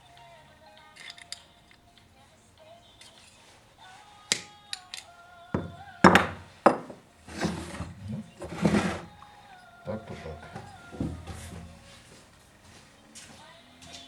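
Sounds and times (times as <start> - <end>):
faint background music: 0.0 - 14.0
knocks and clinks of metal tools: 0.9 - 2.1, 4.3 - 9.2
rustling scrapes: 5.6 - 13.4.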